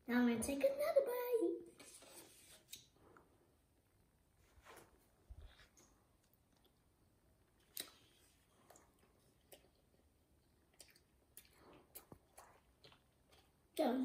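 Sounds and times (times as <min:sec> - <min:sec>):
child chewing crispy food: 0:05.4 - 0:13.8.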